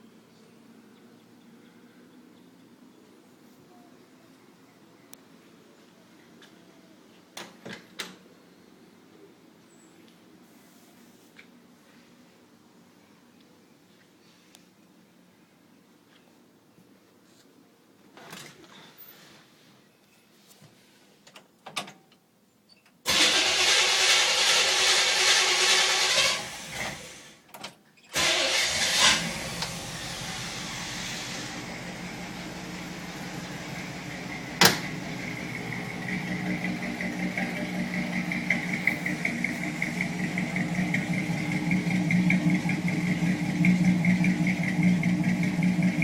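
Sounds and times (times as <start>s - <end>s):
car engine idling: 28.2s - 46.0s.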